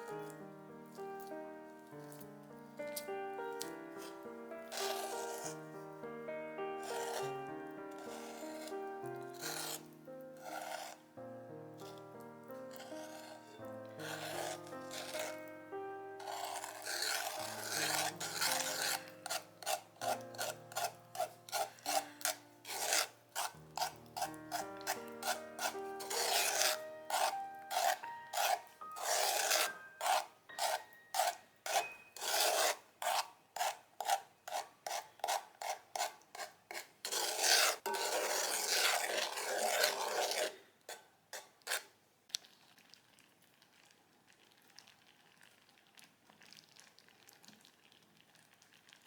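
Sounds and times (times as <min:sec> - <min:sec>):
spoon scraping a saucepan: 0:02.0 - 0:05.9, 0:06.8 - 0:11.0, 0:12.6 - 0:15.5, 0:16.2 - 0:41.9.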